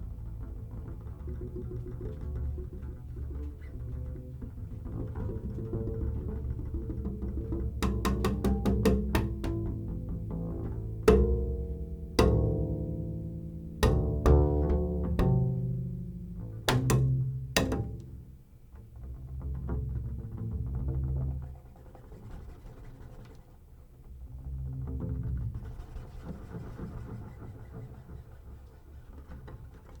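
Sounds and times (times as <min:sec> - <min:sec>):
double bass line: 0:00.0 - 0:21.8, 0:24.0 - 0:26.6.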